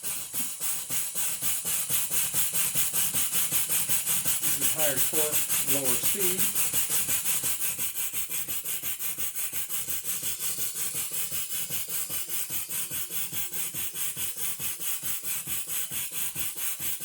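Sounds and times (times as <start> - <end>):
circular saw cutting wood: 0.0 - 17.0
small engine pulsing: 0.0 - 17.0.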